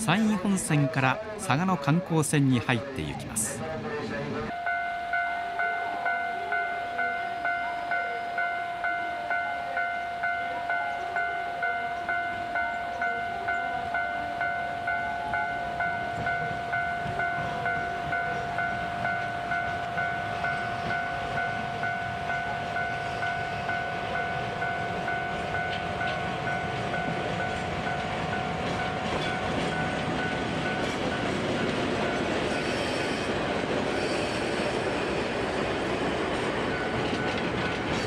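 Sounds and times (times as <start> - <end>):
train running: 0.0 - 38.0
electronic warning bell ringing: 4.5 - 33.3.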